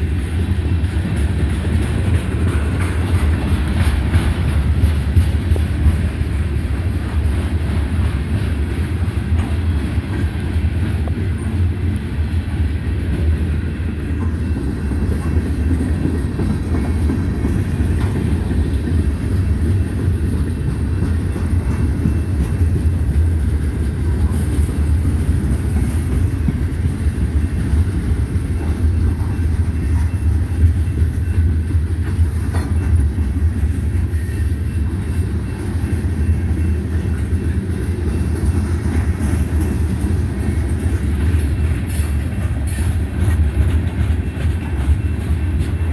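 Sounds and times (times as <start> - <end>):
train wheels rumbling on rails: 0.0 - 45.9.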